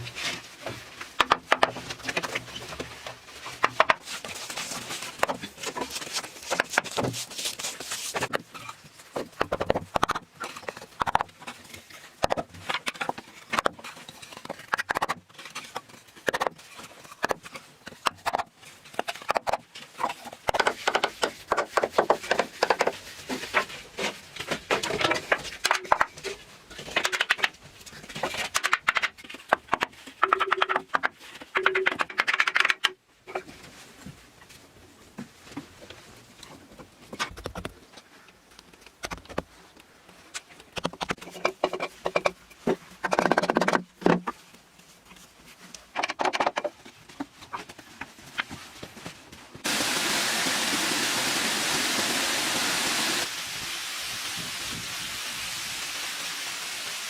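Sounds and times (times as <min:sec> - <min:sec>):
knocks taps and scrapes: 0:00.0 - 0:49.7
steady rushing hiss: 0:49.6 - 0:57.0.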